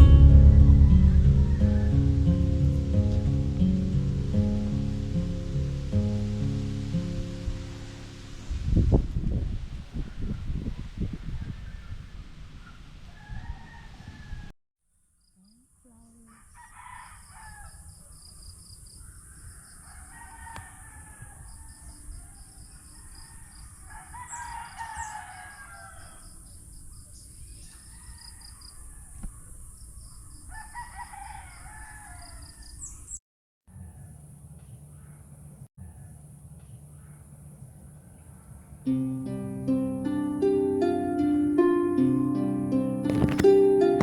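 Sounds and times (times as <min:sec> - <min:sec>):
low rumble: 0:00.0 - 0:09.7.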